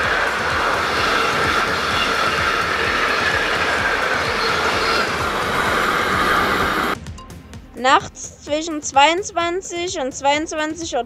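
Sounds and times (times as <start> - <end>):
freight wagon wheels rumbling: 0.0 - 7.0
high wheel squeal: 0.0 - 7.0.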